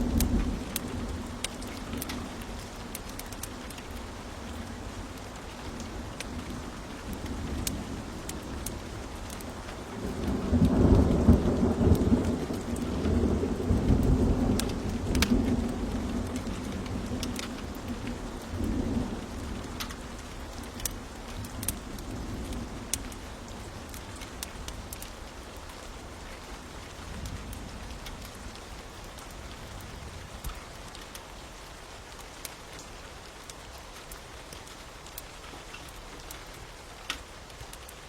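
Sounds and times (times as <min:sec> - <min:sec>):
steady rain: 0:00.0 - 0:38.0
wood fire crackling: 0:00.0 - 0:38.0
thunder rumbling: 0:06.1 - 0:20.5.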